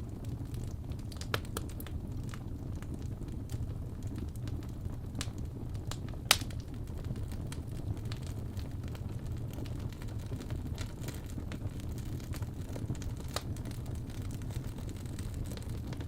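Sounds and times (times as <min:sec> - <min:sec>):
fire popping: 0:00.0 - 0:16.0
fireplace fire crackling: 0:00.0 - 0:16.0.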